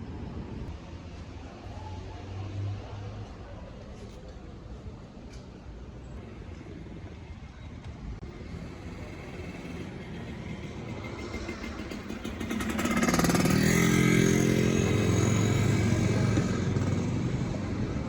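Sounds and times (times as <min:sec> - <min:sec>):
vehicle engine approaching: 0:08.2 - 0:18.0.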